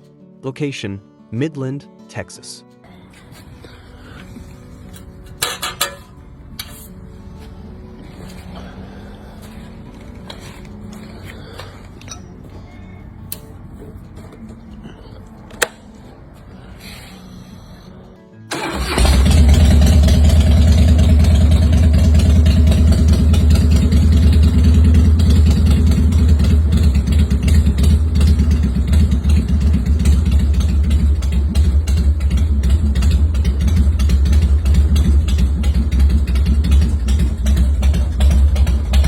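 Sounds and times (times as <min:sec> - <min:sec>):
motorcycle engine starting and idling: 0:03.3 - 0:12.2, 0:18.5 - 0:39.0.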